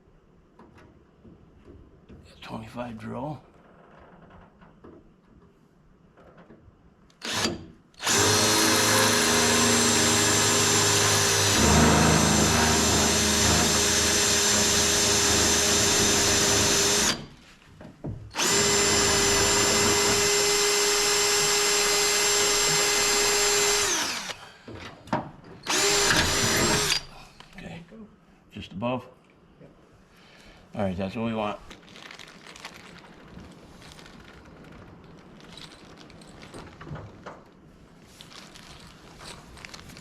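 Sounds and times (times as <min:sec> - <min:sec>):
electric drill boring into steel: 0:07.2 - 0:17.3, 0:18.3 - 0:24.4, 0:25.6 - 0:27.1.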